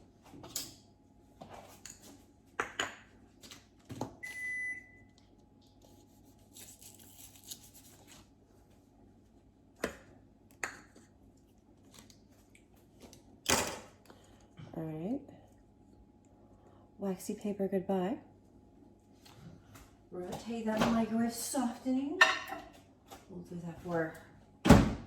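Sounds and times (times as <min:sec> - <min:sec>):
electronic appliance beep: 0:04.2 - 0:05.2.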